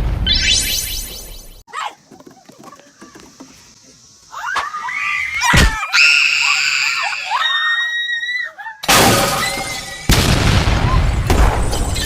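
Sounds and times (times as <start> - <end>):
long high-pitched scream: 4.3 - 8.8
people shrieking and yelling: 4.3 - 10.1.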